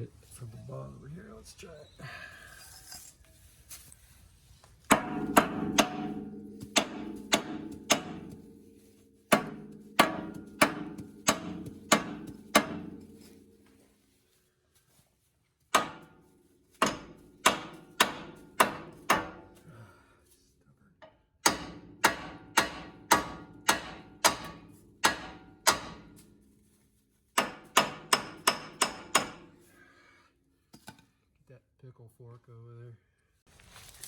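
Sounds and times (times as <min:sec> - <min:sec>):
hammer striking metal: 0:04.9 - 0:13.8, 0:15.7 - 0:16.2, 0:16.8 - 0:19.6, 0:21.4 - 0:26.4, 0:27.4 - 0:29.7.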